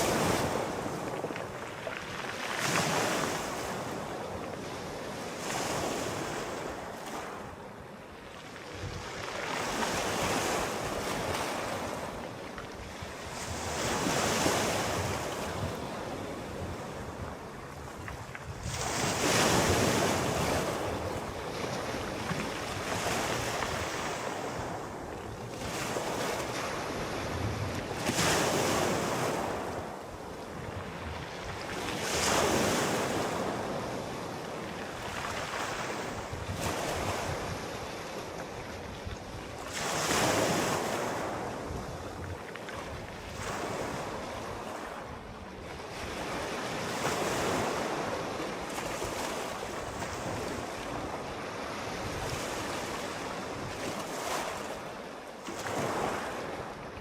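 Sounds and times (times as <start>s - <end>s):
sea waves breaking: 0.0s - 57.0s.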